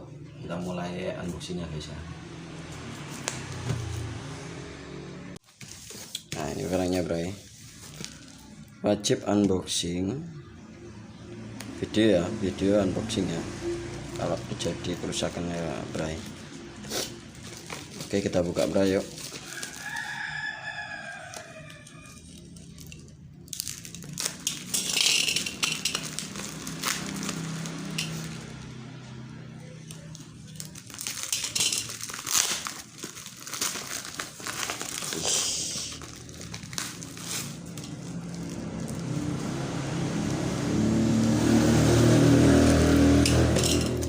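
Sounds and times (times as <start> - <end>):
packaging rustling and crinkling: 5.4 - 8.6, 17.0 - 20.5, 22.2 - 28.5, 29.9 - 39.6
rooster crowing: 19.3 - 22.6.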